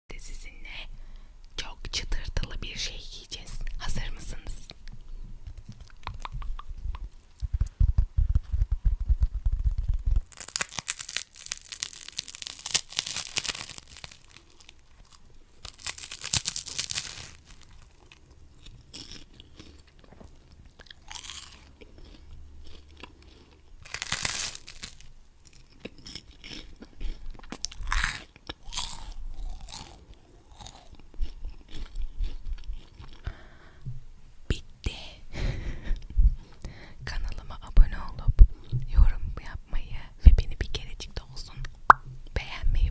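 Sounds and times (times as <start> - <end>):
low thuds: 5.3 - 10.3
crunchy chewing: 5.4 - 7.7, 9.7 - 33.5.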